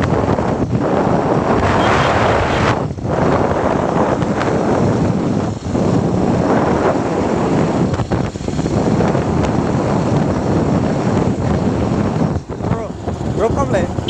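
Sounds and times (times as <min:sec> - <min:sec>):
road noise: 0:00.0 - 0:14.0
wind buffeting microphone: 0:00.0 - 0:14.0.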